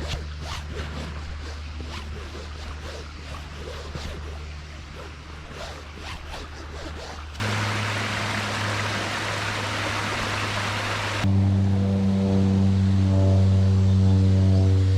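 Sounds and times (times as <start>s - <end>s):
low hum: 0.0s - 14.9s
waterfall rushing: 7.4s - 11.3s.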